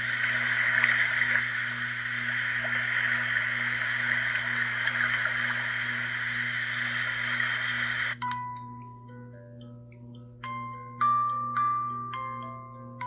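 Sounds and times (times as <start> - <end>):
recorded running water: 0.0 - 8.2
steady low hum: 0.0 - 13.0.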